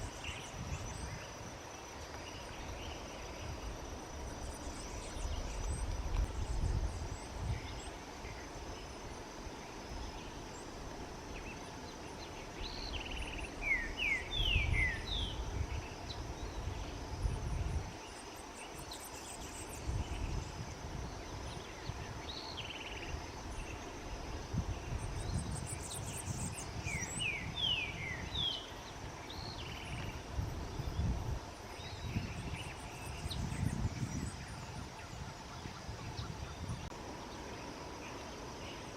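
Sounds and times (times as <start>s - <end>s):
wind rumble on microphone: 0.0s - 38.7s
high insect hum: 0.0s - 38.9s.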